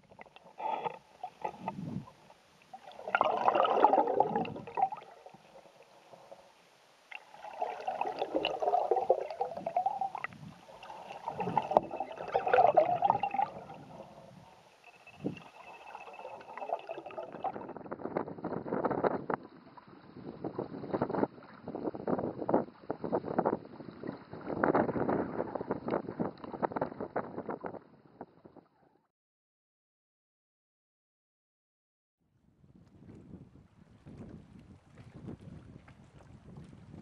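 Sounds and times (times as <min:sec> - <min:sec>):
canoe paddle strokes in water: 0:32.9 - 0:37.0.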